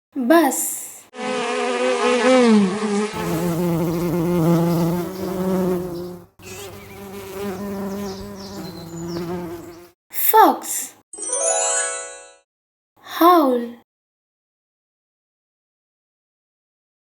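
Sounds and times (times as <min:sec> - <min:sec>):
housefly buzzing: 0:01.2 - 0:10.0.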